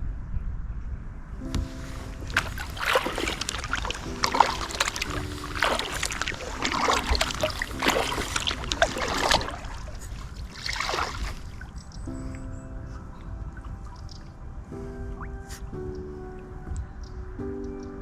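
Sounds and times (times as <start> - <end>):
paddle strokes splashing water: 1.6 - 11.8.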